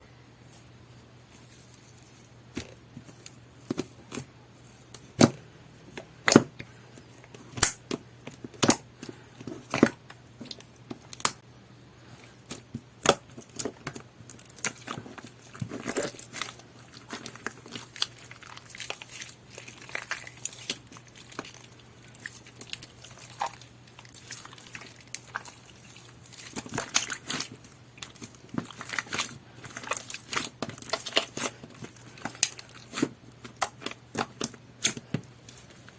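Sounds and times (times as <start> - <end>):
slime popping and squishing: 12.4 - 35.9.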